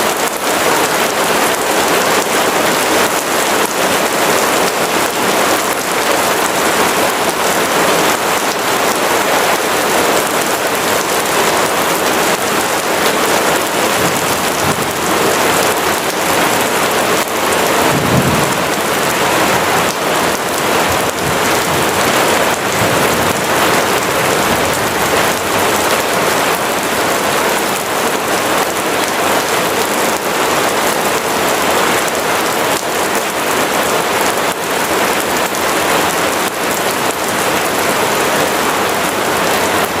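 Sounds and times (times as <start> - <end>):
steady rain: 0.0 - 40.0
distant thunder rumbling: 17.8 - 25.8.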